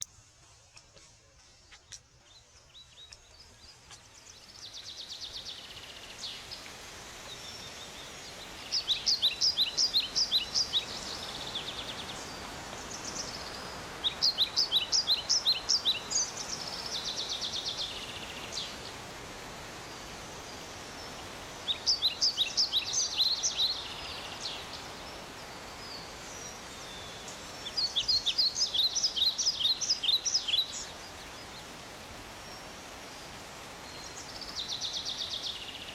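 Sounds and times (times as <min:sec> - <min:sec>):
outdoor background noise: 0:00.0 - 0:35.9
bird singing high chirps: 0:25.8 - 0:31.0.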